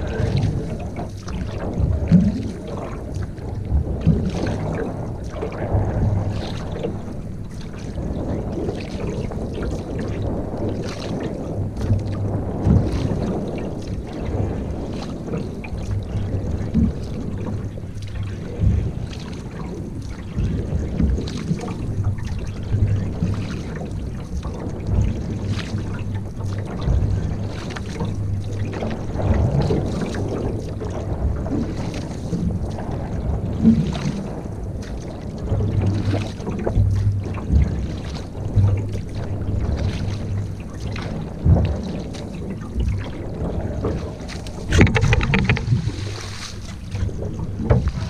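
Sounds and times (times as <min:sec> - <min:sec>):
paddle splashes: 0:00.0 - 0:48.0
wind rumble on microphone: 0:00.0 - 0:48.0.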